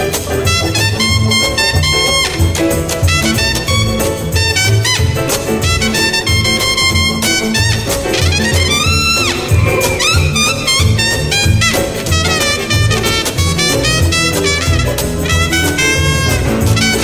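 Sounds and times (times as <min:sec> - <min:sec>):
live jazz band: 0:00.0 - 0:17.0
trumpet and brass horns: 0:00.0 - 0:17.0
pulsing bass: 0:08.2 - 0:13.0.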